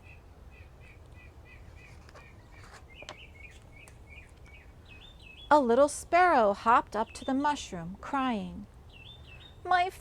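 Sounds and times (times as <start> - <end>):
faint bird chirping: 0.0 - 5.9, 8.6 - 10.0.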